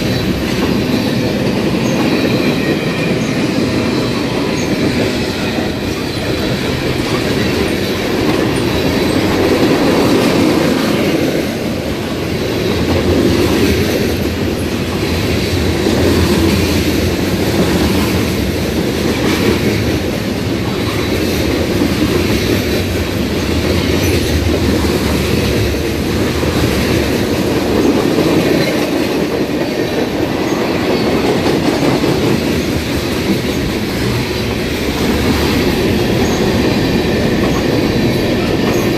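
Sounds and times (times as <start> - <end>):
train rumbling past on rails: 0.0 - 38.9.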